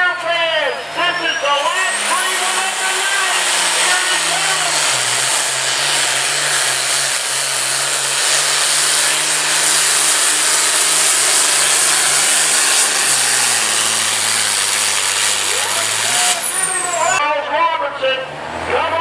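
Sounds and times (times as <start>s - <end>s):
truck engine droning under load: 0.0s - 19.0s.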